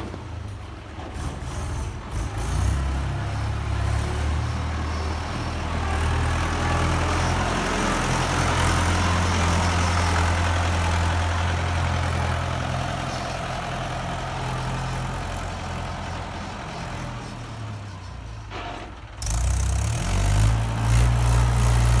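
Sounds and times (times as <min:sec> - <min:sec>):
tractor diesel engine droning: 0:00.0 - 0:22.0.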